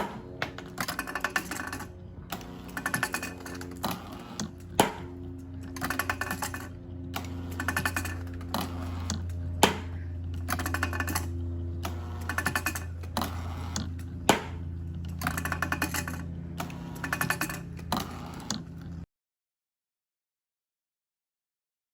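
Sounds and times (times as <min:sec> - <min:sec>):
rapid clicking: 0:00.0 - 0:19.0
engine low hum: 0:00.0 - 0:19.1.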